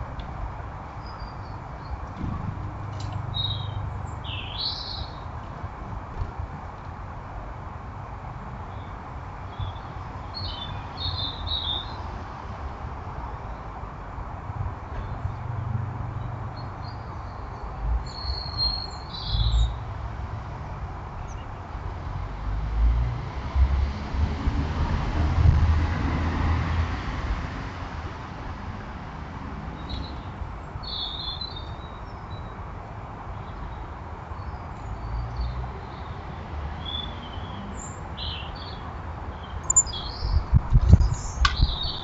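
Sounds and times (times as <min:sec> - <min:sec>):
small birds chirping: 0:02.9 - 0:05.4, 0:08.7 - 0:12.1, 0:16.2 - 0:19.8, 0:29.8 - 0:32.6, 0:33.4 - 0:42.0.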